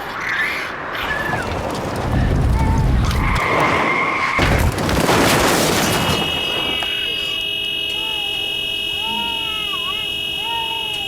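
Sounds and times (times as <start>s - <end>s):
loud crashing noise: 1.3s - 7.2s.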